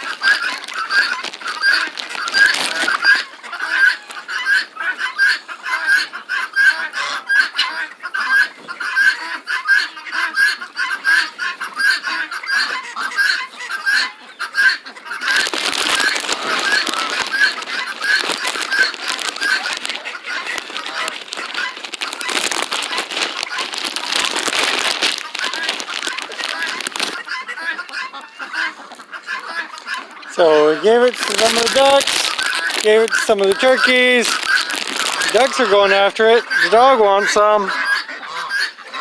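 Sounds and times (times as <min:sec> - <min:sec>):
loud rustling: 0:00.0 - 0:03.2, 0:15.2 - 0:28.0, 0:29.8 - 0:37.4
farmyard fowl calling: 0:00.0 - 0:39.0.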